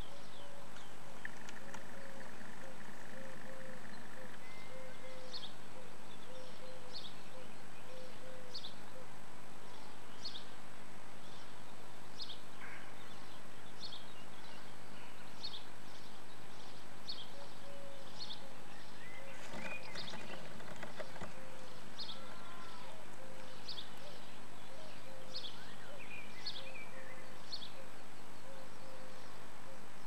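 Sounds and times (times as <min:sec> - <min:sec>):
bird chirping: 0:00.0 - 0:10.5, 0:11.2 - 0:30.0
scratching and rustling on nest: 0:19.3 - 0:21.4.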